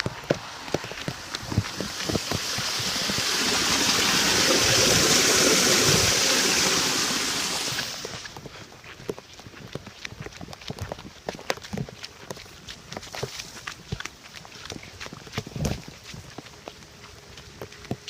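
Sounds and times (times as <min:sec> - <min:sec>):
rushing water: 0:00.0 - 0:08.3.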